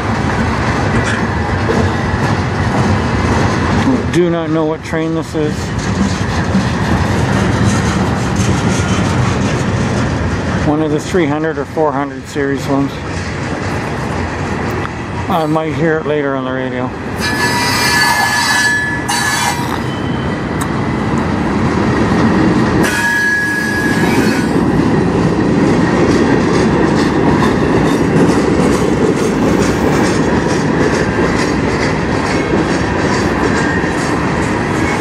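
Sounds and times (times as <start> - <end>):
wheels clacking over rail joints: 0.0 - 35.0
high wheel squeal: 17.2 - 20.4, 22.8 - 24.6.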